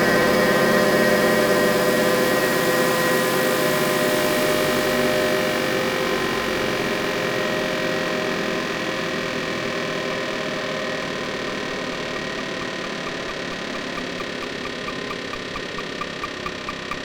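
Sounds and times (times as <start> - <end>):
droning electronic noise texture: 9.2 - 17.0
short pitched electronic blips: 11.3 - 17.0.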